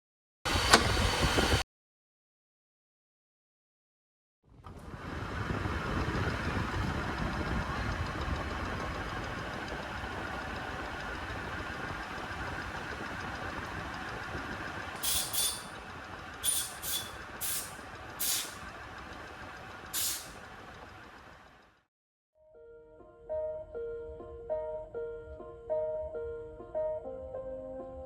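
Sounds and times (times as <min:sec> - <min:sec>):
lathe humming: 0:06.3 - 0:21.7
short sharp hisses: 0:15.0 - 0:15.7, 0:16.4 - 0:18.6, 0:20.0 - 0:20.4.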